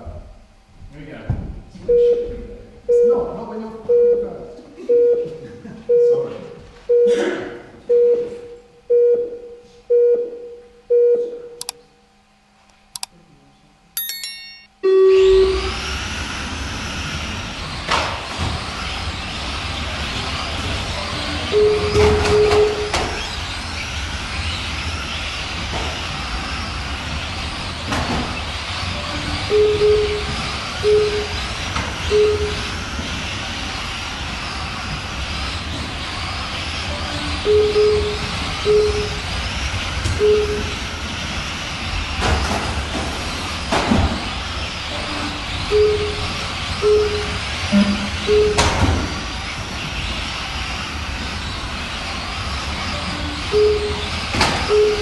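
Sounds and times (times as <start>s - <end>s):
countdown beeps: 1.9s - 3.3s, 3.9s - 6.3s, 6.9s - 7.2s, 7.9s - 11.7s, 14.0s - 15.7s, 21.5s - 22.9s, 29.5s - 31.4s, 32.1s - 32.7s, 37.4s - 39.2s, 40.2s - 40.8s, 45.7s - 48.8s, 53.5s - 55.0s
high electronic tones: 14.0s - 15.8s, 29.5s - 32.8s, 37.4s - 39.2s, 40.2s - 40.8s, 45.7s - 49.0s, 53.0s - 55.0s
long low start tone: 14.0s - 16.0s, 32.1s - 32.7s, 45.7s - 48.8s
electric toy trucks whining: 15.0s - 55.0s.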